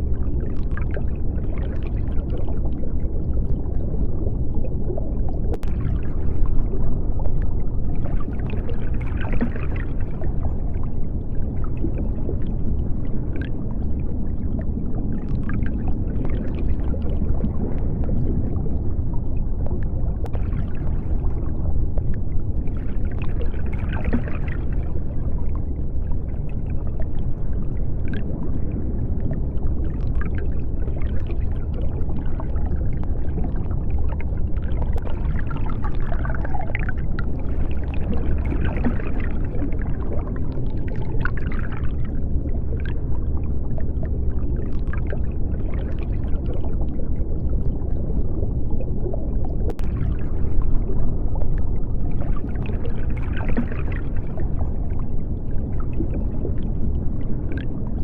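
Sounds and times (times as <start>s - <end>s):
bubbling and gurgling: 0.0s - 58.0s
deep underwater rumble: 0.0s - 58.0s.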